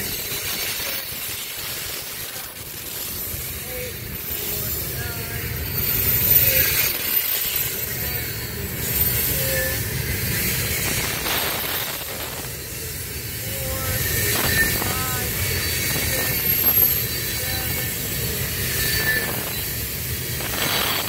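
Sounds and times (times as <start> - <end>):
train wheels rumbling on rails: 0.0 - 21.0
faint wheel squeals: 12.4 - 21.0.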